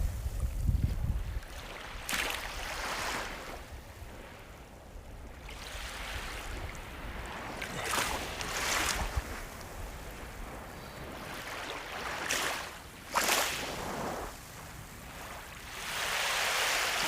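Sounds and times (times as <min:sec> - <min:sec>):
sea waves breaking on shore: 0:01.2 - 0:17.0.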